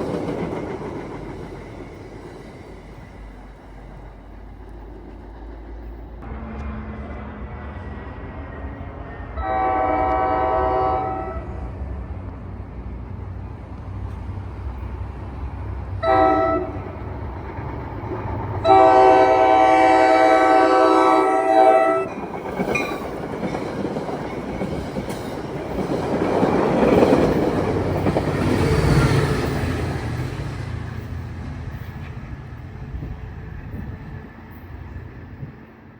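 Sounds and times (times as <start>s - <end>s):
train passing rumble: 0.0s - 35.9s
train air horn blasts: 9.1s - 11.6s, 16.0s - 16.9s, 18.6s - 22.1s.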